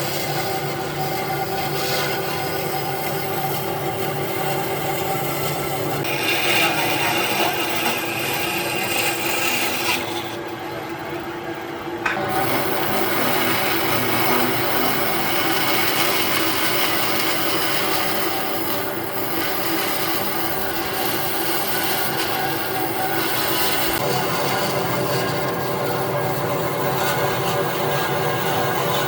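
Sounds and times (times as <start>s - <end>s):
tool rasping against wood: 6.0s - 10.4s.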